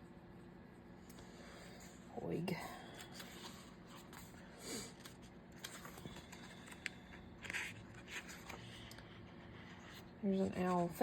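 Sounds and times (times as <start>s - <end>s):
paper pages rustling: 2.9s - 10.8s.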